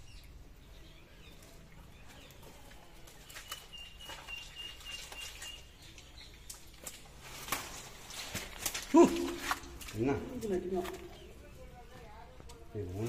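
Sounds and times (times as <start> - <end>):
rustling of wet fishing net: 1.4 - 11.4.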